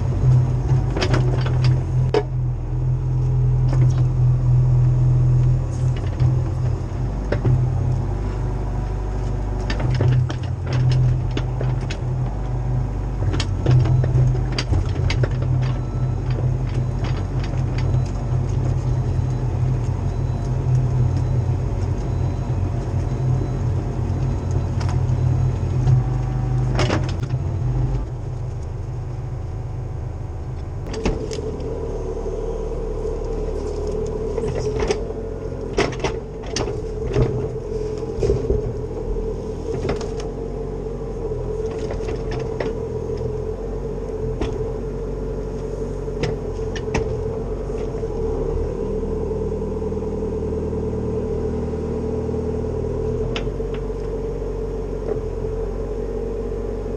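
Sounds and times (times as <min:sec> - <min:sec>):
excavator diesel engine running: 0:00.0 - 0:56.9
steady higher hum: 0:27.2 - 0:35.7.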